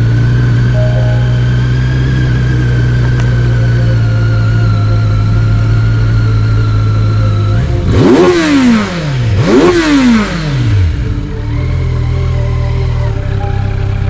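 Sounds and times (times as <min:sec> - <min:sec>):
vehicle engine idling and revving: 0:00.0 - 0:14.0.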